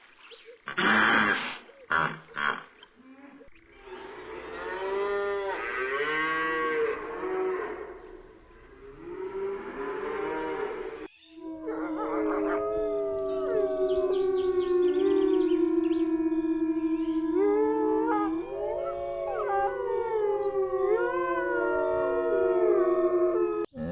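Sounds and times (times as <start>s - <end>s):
animals howling: 3.3s - 23.9s
animal calls rising and falling: 8.8s - 23.7s.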